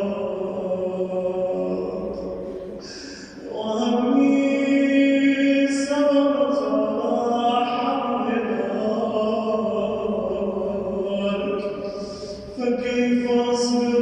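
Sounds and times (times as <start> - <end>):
man chanting melodically: 3.4 - 14.0.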